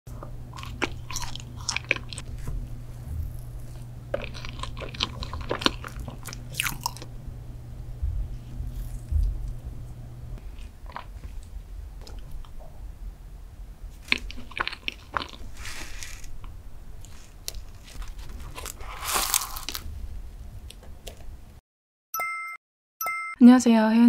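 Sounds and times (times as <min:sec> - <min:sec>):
low steady hum: 0:00.1 - 0:21.6
person chewing and mouth clicks: 0:00.5 - 0:07.1, 0:10.4 - 0:12.6, 0:14.0 - 0:19.8.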